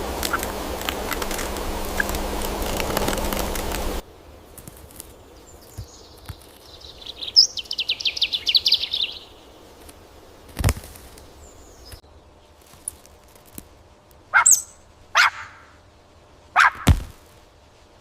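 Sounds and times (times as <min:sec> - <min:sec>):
loud rush of noise: 0:00.0 - 0:04.0
faint outdoor ambience: 0:00.0 - 0:18.0
small bird trilling: 0:05.6 - 0:09.4, 0:14.3 - 0:15.8, 0:16.6 - 0:16.9.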